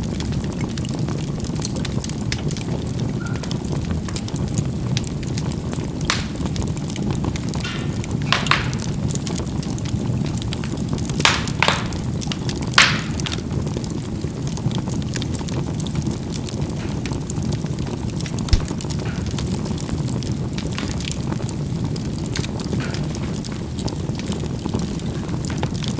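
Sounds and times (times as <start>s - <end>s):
charcoal fire rushing: 0.0s - 25.9s
fire crackling pops: 0.0s - 25.9s
dull knock: 18.6s - 18.8s.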